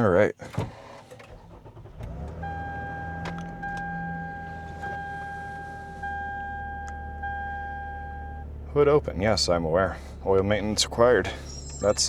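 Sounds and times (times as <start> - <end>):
car engine starting and idling: 0.3 - 12.0
dashboard warning chime: 2.2 - 8.6, 10.5 - 12.0.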